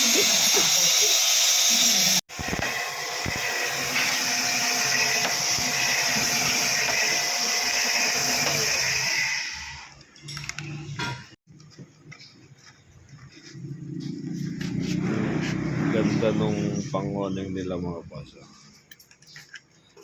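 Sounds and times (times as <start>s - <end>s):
machine hissing whir: 0.0s - 9.9s.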